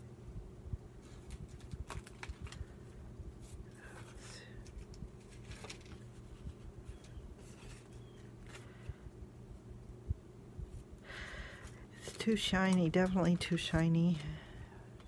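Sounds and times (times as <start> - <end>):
paper rustling: 1.0 - 8.8, 11.6 - 14.2.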